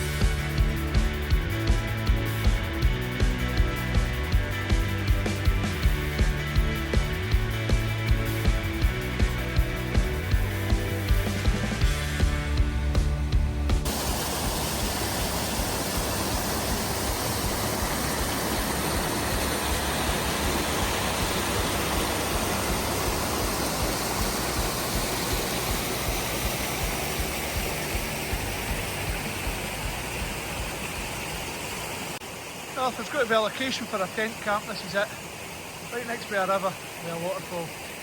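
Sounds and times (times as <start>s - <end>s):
waterfall rushing: 13.6s - 38.0s.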